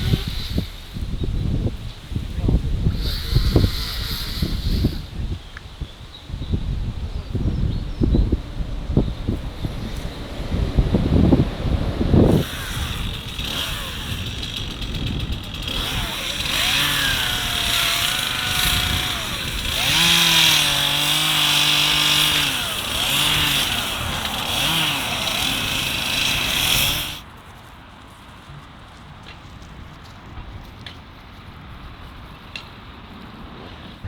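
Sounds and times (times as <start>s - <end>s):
wind buffeting microphone: 0.0s - 27.3s
engine revving: 2.9s - 5.1s, 6.9s - 27.2s.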